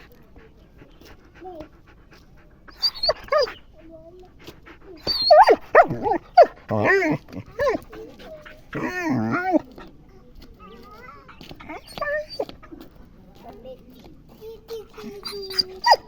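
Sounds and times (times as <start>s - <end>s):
puppy whining: 2.7s - 3.6s, 5.0s - 9.9s, 11.6s - 12.6s, 15.0s - 16.0s.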